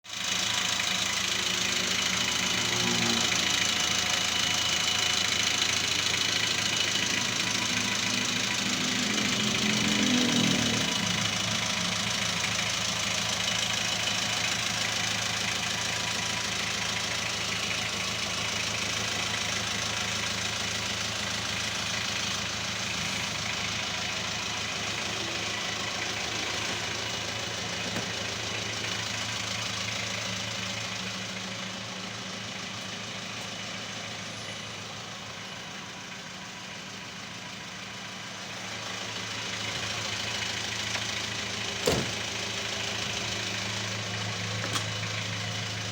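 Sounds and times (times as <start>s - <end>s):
car engine idling: 0.0s - 45.9s.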